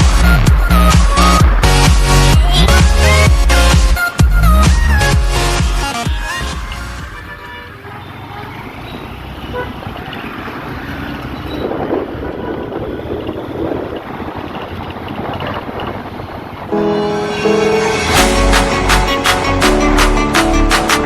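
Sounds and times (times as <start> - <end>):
passing traffic: 0.0 - 21.0
motorcycle engine: 6.6 - 16.8
wind on microphone: 11.6 - 16.8.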